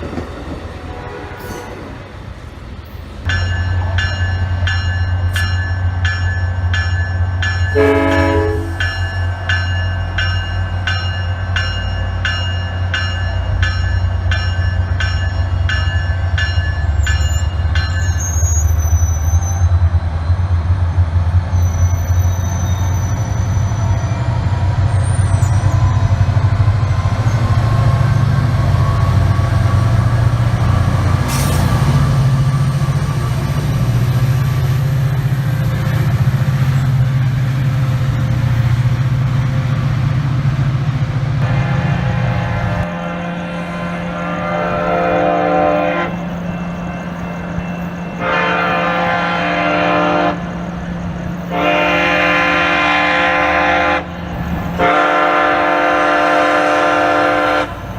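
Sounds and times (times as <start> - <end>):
train rumbling past: 0.0 - 57.9
high wheel squeals: 16.9 - 19.8, 21.5 - 26.0
bell ringing: 46.1 - 48.8.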